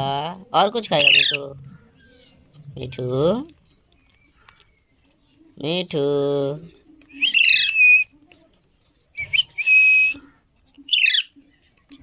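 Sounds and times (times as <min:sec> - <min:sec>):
parakeet whistled calls: 0:07.2 - 0:08.1, 0:10.9 - 0:11.3.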